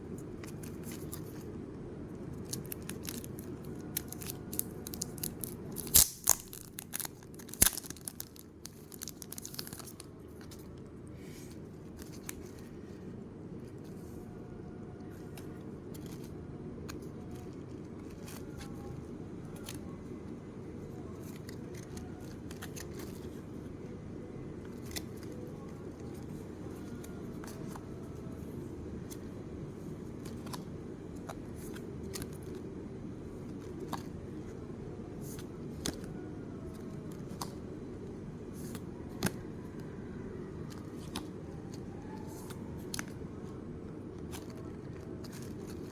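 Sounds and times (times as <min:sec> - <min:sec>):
steady low hum: 0:00.0 - 0:45.9
packaging tearing and crinkling: 0:02.5 - 0:10.1.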